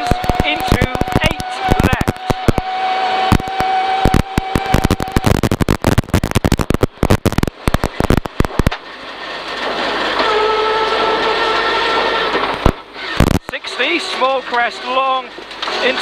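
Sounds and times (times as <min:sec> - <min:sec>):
sharp cracks and pops: 0:00.0 - 0:10.3, 0:12.2 - 0:13.6, 0:15.4 - 0:15.9
rally car engine: 0:00.0 - 0:16.0.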